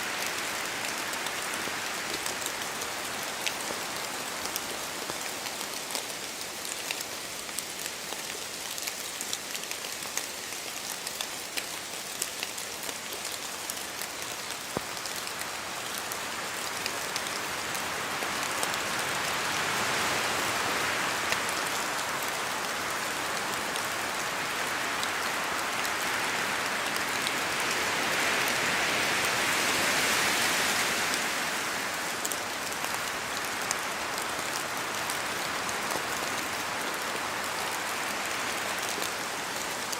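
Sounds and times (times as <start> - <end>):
rain pattering in forest: 0.0 - 39.9
drops ticking from trees: 1.9 - 17.8.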